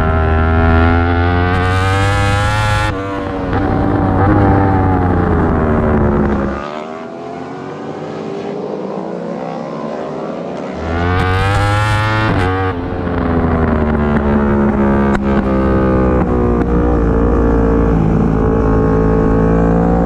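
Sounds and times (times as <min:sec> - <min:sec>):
race motorcycle engine revving: 0:00.0 - 0:20.0.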